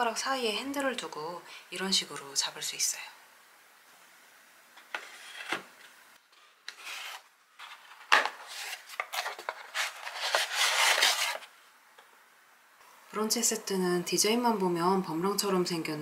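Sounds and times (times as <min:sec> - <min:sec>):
cardboard rubbing and scraping: 0:04.9 - 0:11.5.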